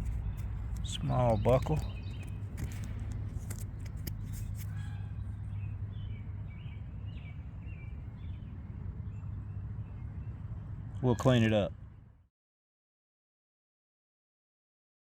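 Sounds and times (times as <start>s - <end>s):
sharp scratchy clicks: 0.0s - 4.8s
steady low rumble: 0.0s - 11.1s
birds chirping: 0.0s - 12.0s.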